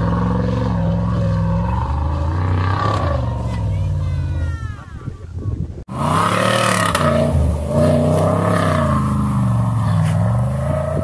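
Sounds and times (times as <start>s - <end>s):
car engine revving hard: 0.0s - 3.4s, 5.9s - 11.0s.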